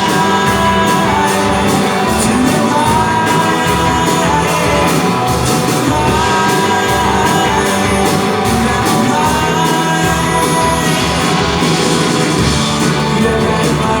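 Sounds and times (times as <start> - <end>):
drumbeat: 0.0 - 14.0
live rock band playing: 0.0 - 14.0
person singing: 0.0 - 14.0.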